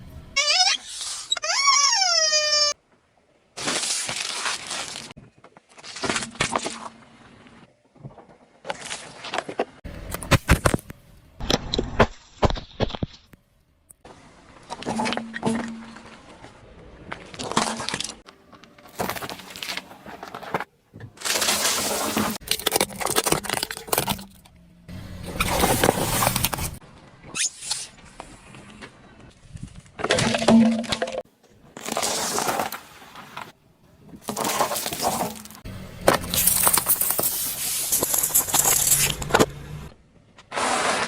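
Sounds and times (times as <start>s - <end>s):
tyres crushing objects: 17.1s - 24.4s, 34.2s - 39.6s.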